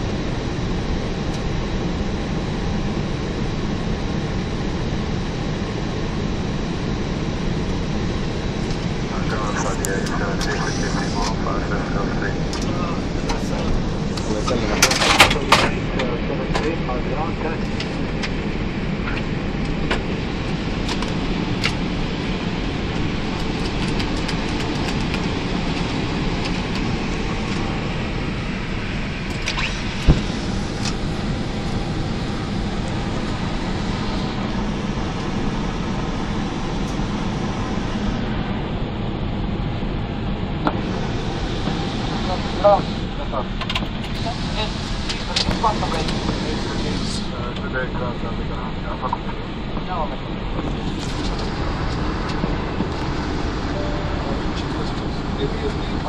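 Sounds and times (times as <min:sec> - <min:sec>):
aircraft engine and airflow rush: 0:00.0 - 0:56.0
faint steady high tone: 0:53.7 - 0:55.8.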